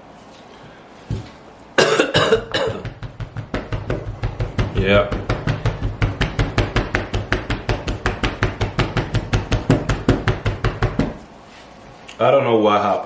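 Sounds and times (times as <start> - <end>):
rapid knocking on hard surface: 2.4 - 11.2.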